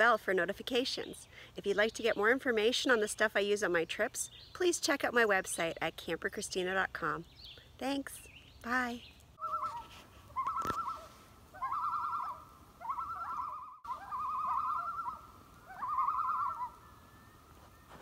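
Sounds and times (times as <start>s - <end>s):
bird warbling calls: 8.3s - 17.8s.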